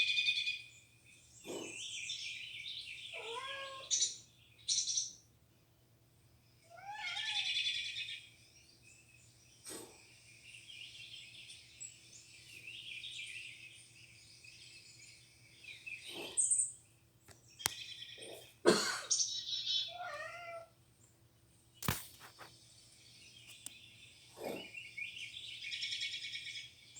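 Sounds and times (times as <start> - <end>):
songbirds chirping and singing: 0.0 - 26.9.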